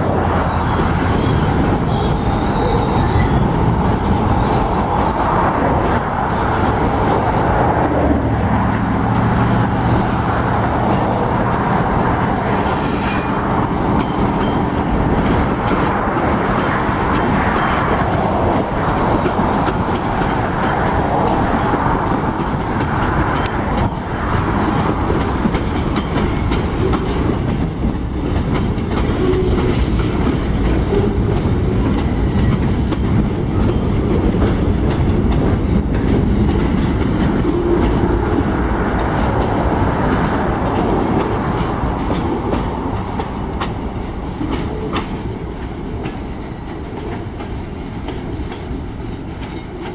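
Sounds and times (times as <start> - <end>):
freight train rumbling: 0.0 - 49.9
wheels clicking over rail joints: 13.0 - 49.9.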